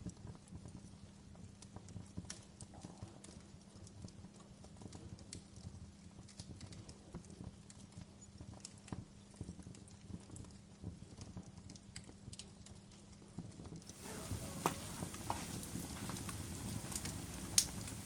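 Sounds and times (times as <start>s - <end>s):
low rumble of burning fire: 0.0s - 18.0s
campfire crackling: 2.0s - 10.5s, 13.9s - 18.0s.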